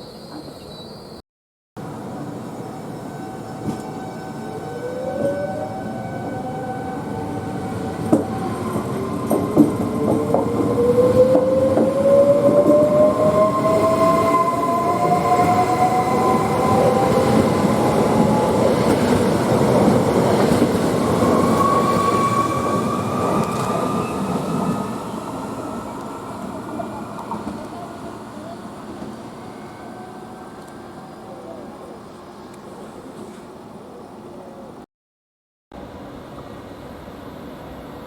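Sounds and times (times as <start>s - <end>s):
train wheels rumbling on rails: 6.4s - 30.9s.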